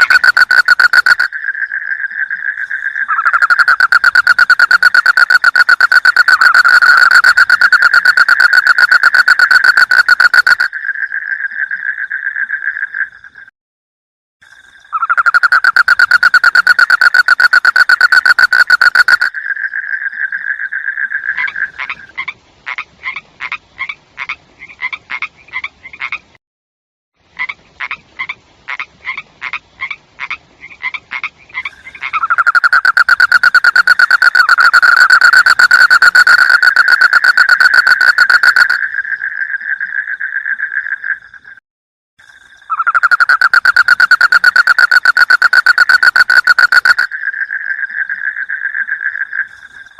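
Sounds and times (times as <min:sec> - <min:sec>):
frog trilling: 0:00.0 - 0:13.1, 0:14.9 - 0:22.1, 0:30.7 - 0:41.6, 0:42.6 - 0:49.9.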